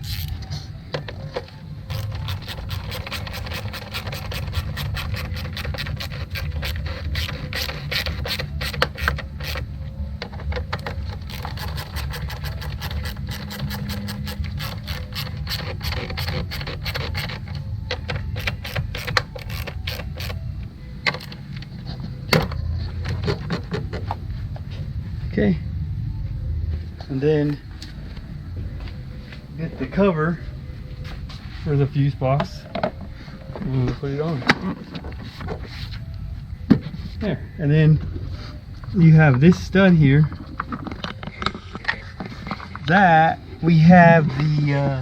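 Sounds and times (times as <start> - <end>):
low rumble: 20.4 - 32.2.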